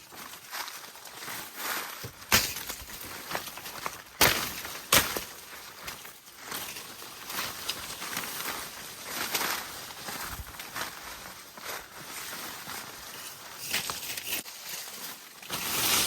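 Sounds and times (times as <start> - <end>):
footsteps crunching on dry leaves: 0.0 - 16.0
sharp cracks of twigs: 2.1 - 9.7.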